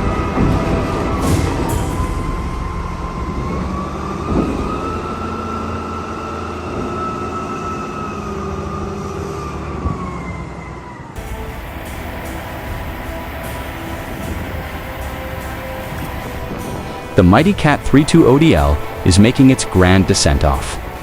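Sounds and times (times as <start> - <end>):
heavy vehicle rumble: 0.0 - 21.0.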